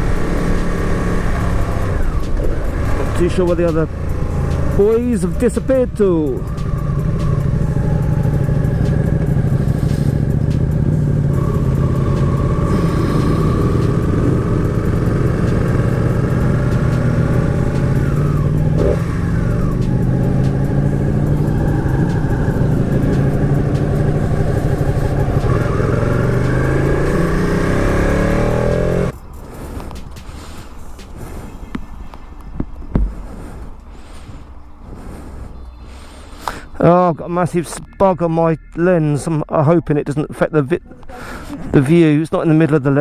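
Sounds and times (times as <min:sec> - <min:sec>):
motorcycle engine revving: 0:00.0 - 0:32.2.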